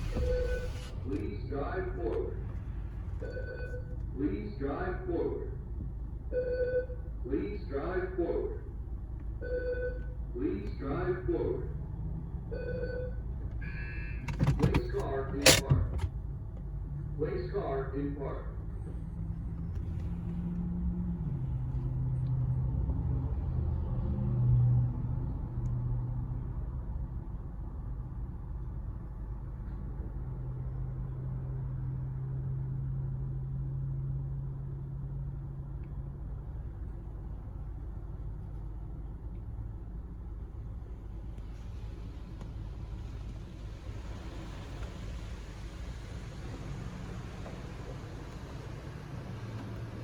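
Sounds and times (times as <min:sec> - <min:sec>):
car wash machinery hum: 0:00.0 - 0:23.9, 0:26.2 - 0:50.0.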